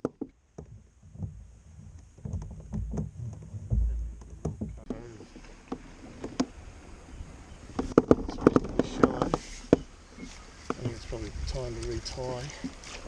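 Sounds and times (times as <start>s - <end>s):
low rumbling thumps on kayak: 0.0s - 6.6s
small knocks: 0.0s - 6.6s, 7.7s - 9.9s.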